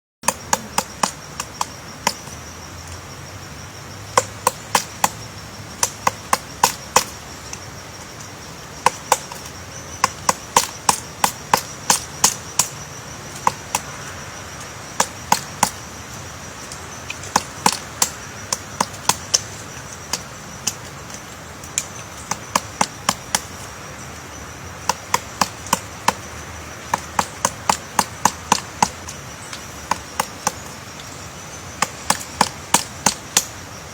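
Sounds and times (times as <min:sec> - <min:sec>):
sharp knocks on wood: 0:00.2 - 0:02.4, 0:04.2 - 0:05.2, 0:05.8 - 0:07.2, 0:08.8 - 0:12.8, 0:13.4 - 0:13.9, 0:15.0 - 0:15.8, 0:17.1 - 0:20.8, 0:21.8 - 0:23.6, 0:24.9 - 0:26.3, 0:26.9 - 0:30.7, 0:31.8 - 0:33.5.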